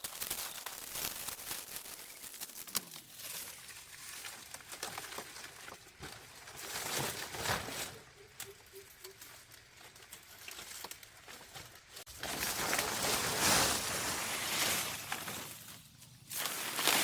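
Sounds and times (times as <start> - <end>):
dry leaves rustling and crackling: 0.0 - 17.0.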